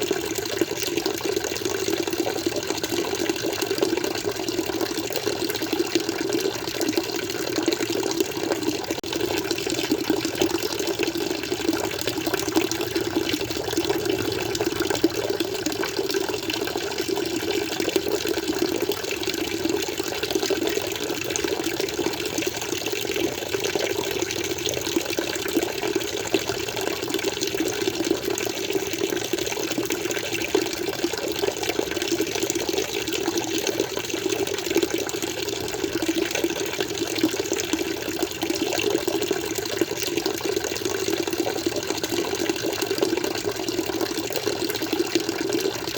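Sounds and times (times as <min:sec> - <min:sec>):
aquarium water flowing: 0:00.0 - 0:45.9.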